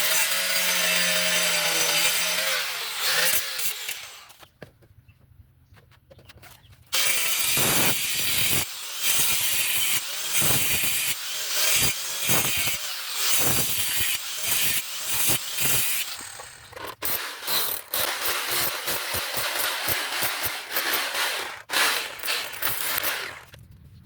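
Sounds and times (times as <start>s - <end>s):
hand saw rasping strokes: 7.0s - 23.6s.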